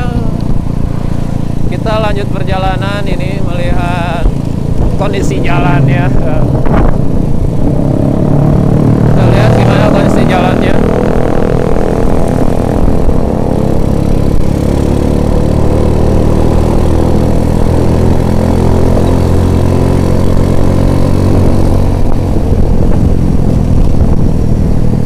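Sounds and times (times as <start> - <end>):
motorcycle engine cruising: 0.0 - 25.0
road and wind rush: 0.0 - 25.0.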